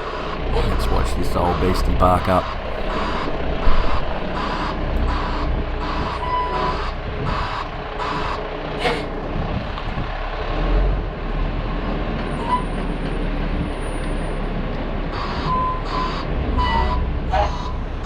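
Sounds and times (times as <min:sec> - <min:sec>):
reversing alarm beeping: 0:00.0 - 0:09.1, 0:15.1 - 0:18.0
truck engine running: 0:00.0 - 0:18.0.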